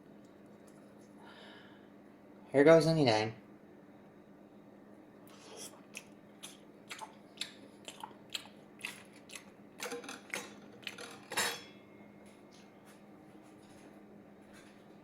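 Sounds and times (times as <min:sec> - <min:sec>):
faint steady hum: 0:00.0 - 0:15.0
crunchy pizza chewing: 0:05.3 - 0:09.6.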